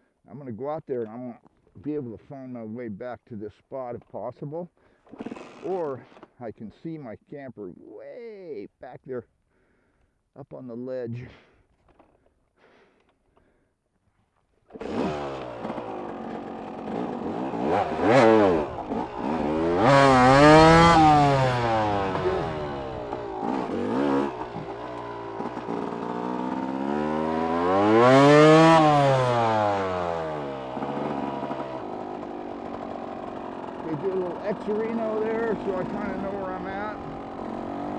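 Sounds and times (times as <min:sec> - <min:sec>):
dirt bike engine revving: 0:05.1 - 0:06.2, 0:14.7 - 0:37.9.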